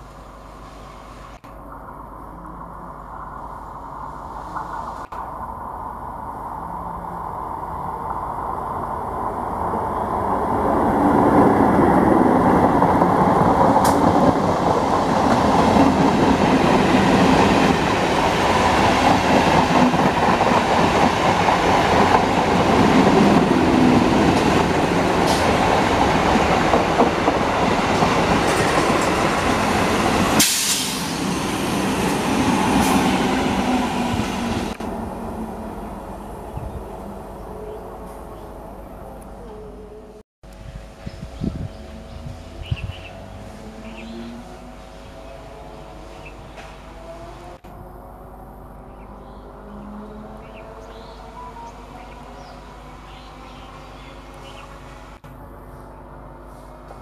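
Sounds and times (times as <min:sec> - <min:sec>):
train approaching: 0:00.0 - 0:57.0
train wheels rumbling and rattling: 0:09.3 - 0:38.8.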